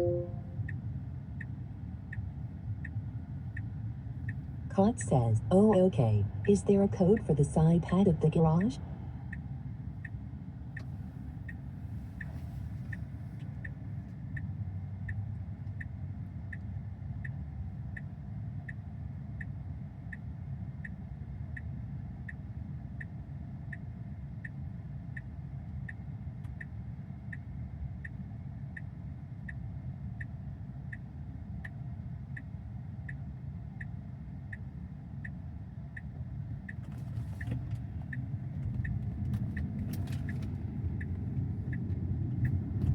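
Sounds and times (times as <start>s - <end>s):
turn signal ticking: 0.0s - 42.9s
car cabin rumble: 1.3s - 14.3s, 35.6s - 42.9s.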